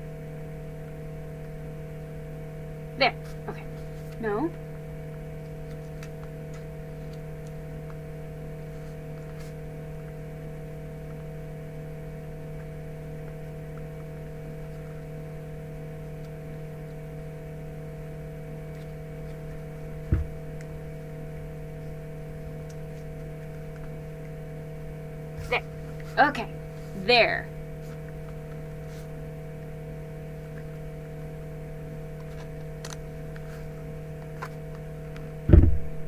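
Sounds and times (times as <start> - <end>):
electrical hum: 0.0 - 36.0
low thump: 20.0 - 20.6, 35.5 - 36.0.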